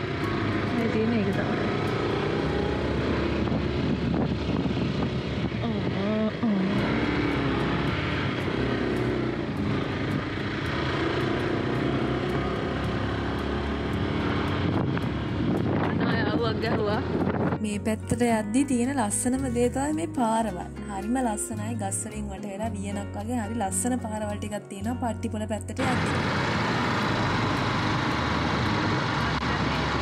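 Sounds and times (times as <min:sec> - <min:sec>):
motorcycle engine running: 0:00.0 - 0:22.0, 0:25.8 - 0:30.0.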